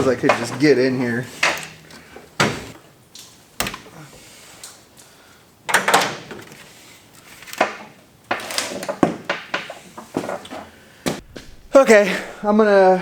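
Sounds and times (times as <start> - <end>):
hand tools knocking and clanking: 0.0 - 2.8, 7.6 - 11.2.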